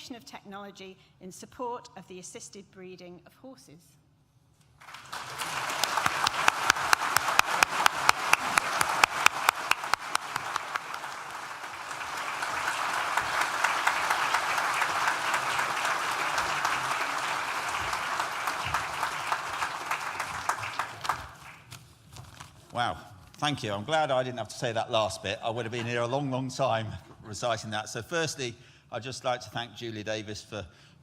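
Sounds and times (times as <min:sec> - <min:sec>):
audience applauding: 0:04.8 - 0:21.8.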